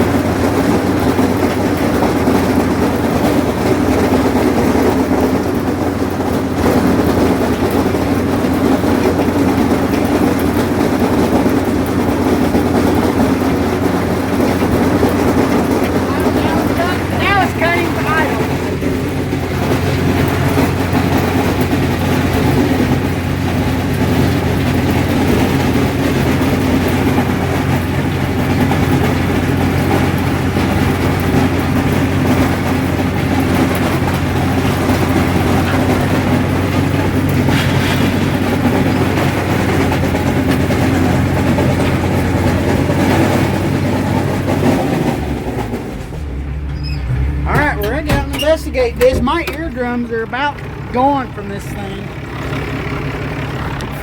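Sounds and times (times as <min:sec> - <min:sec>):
diesel tractor running: 0:00.0 - 0:54.0
mower rapid clanging clatter: 0:00.0 - 0:54.0.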